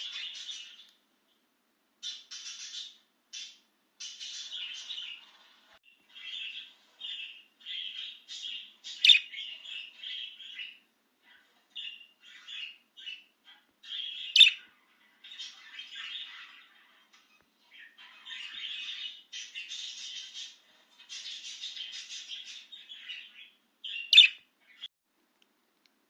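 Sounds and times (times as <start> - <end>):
budgerigar chirping: 7.2 - 10.7, 11.8 - 14.7, 21.4 - 24.5.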